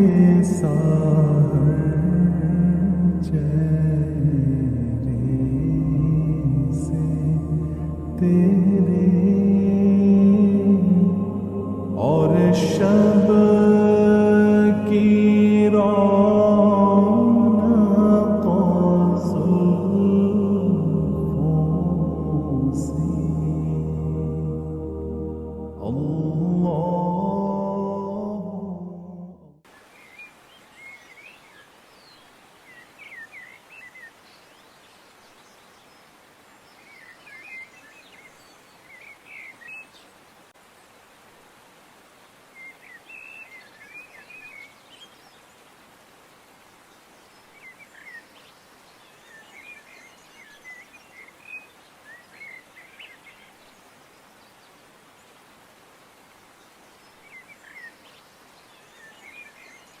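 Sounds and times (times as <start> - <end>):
faint outdoor hiss: 0.0 - 60.0
small birds chirping: 29.7 - 40.6, 42.5 - 45.8, 46.8 - 60.0.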